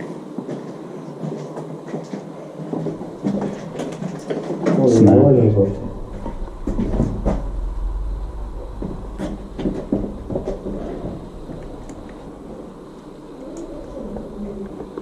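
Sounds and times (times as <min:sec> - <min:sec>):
low rumble: 0:04.8 - 0:15.0.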